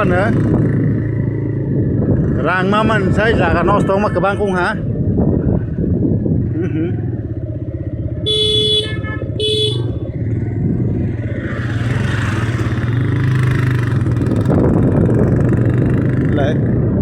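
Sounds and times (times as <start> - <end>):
motorcycle engine running: 0.0 - 3.8, 4.8 - 17.0
vehicle horn honking: 8.3 - 10.0.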